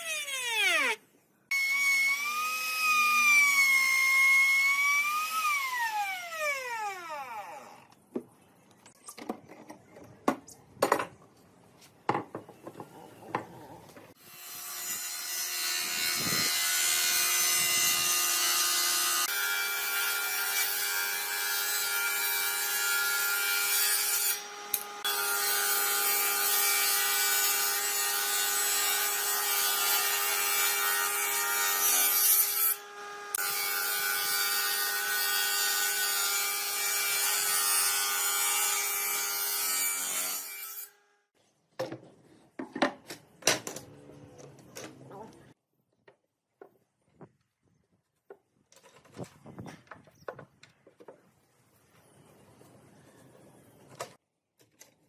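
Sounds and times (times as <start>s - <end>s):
power tool cutting wood: 0.0s - 7.9s, 14.1s - 40.9s.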